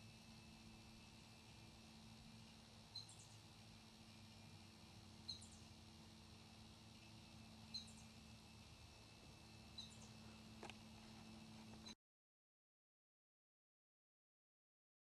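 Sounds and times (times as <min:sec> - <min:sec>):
steady low hum: 0:00.0 - 0:12.0
faint small bird chirp: 0:02.3 - 0:05.8, 0:06.9 - 0:08.8, 0:09.6 - 0:12.0.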